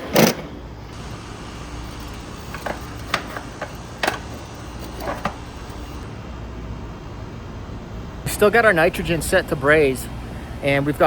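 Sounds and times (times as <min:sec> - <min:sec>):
steady low hum: 0:00.0 - 0:11.0
tools clicking and knocking: 0:01.8 - 0:06.0.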